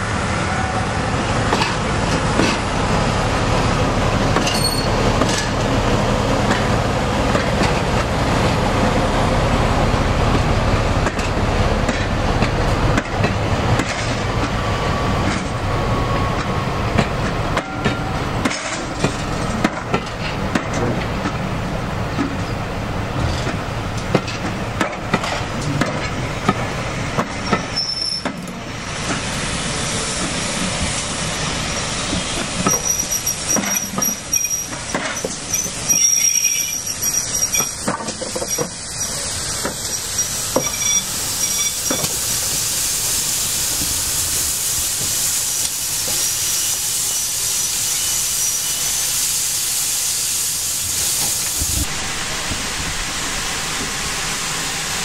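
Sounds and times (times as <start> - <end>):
train carriages rolling past: 0.0 - 55.0
high wheel squeal: 4.4 - 5.0, 27.3 - 28.4, 31.7 - 42.1, 46.0 - 49.2
steady hiss: 35.4 - 55.0.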